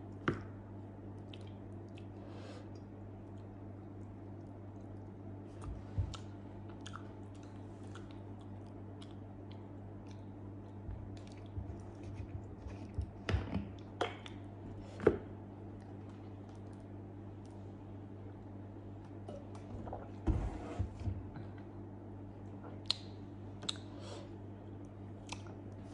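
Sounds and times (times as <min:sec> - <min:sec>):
steady low hum: 0:00.0 - 0:25.9
person chewing with wet smacks: 0:01.1 - 0:13.2, 0:22.7 - 0:23.9, 0:24.7 - 0:25.9.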